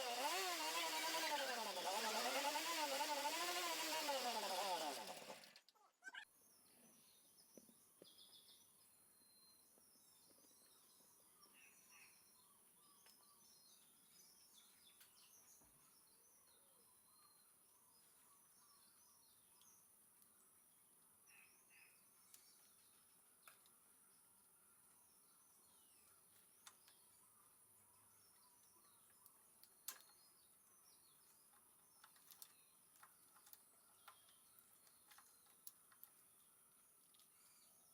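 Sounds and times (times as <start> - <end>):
motorcycle engine revving: 0.0 - 5.6.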